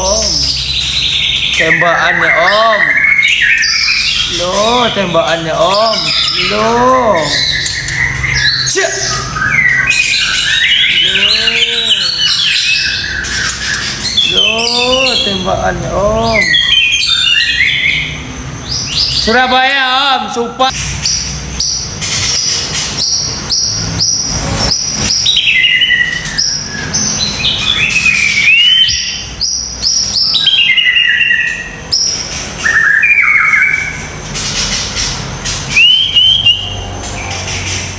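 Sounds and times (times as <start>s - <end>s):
bird singing whistles and trills: 0.0s - 19.5s, 21.0s - 34.8s, 35.5s - 37.9s
low drawn-out voice: 14.3s - 16.5s.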